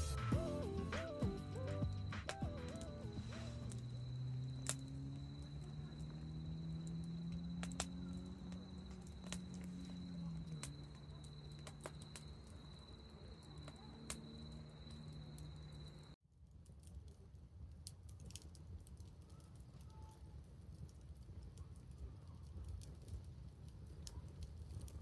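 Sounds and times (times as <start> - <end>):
steady low hum: 0.0 - 16.2
thin high tone: 0.0 - 16.2
campfire crackling: 0.0 - 25.0.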